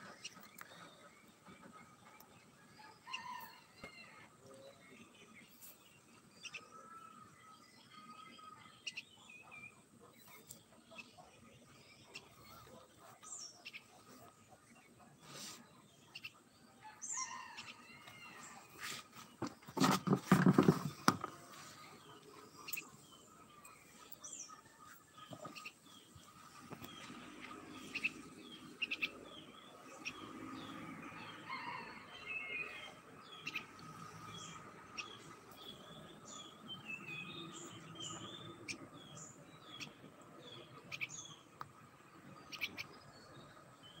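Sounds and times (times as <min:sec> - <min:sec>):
small birds chirping: 0:00.0 - 0:44.0
small bird chirping: 0:27.8 - 0:30.8, 0:33.3 - 0:40.0, 0:42.4 - 0:43.1.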